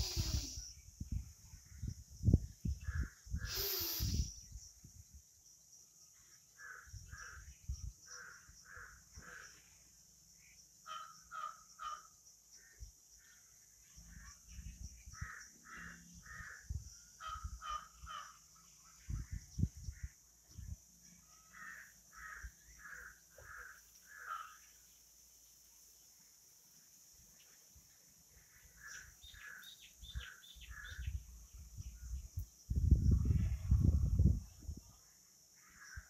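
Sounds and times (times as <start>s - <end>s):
birds harsh calls: 0.0s - 0.7s, 21.4s - 24.7s, 28.5s - 31.2s.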